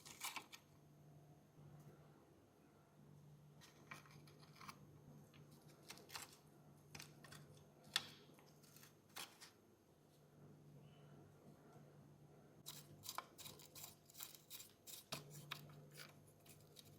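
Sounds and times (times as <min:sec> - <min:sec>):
small parts clicking and tapping: 0:12.6 - 0:16.9.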